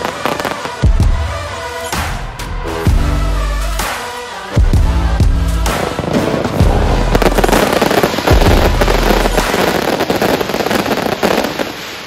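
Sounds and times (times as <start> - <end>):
fireworks crackling and popping: 0.0 - 1.9, 5.3 - 12.0.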